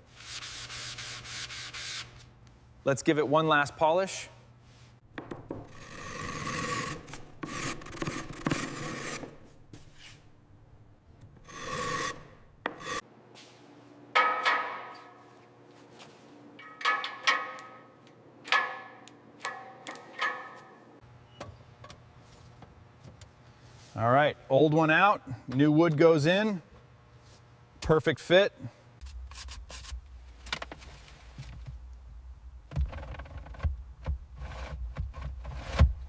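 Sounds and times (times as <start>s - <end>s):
hand rubbing hard surface: 6.0s - 10.3s
polishing squeaks: 11.5s - 13.0s.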